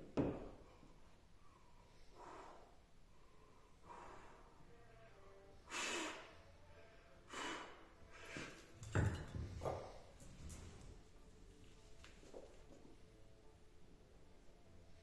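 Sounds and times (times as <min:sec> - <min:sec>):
man breathing hard: 0:00.6 - 0:04.7, 0:05.6 - 0:06.4, 0:07.2 - 0:08.8.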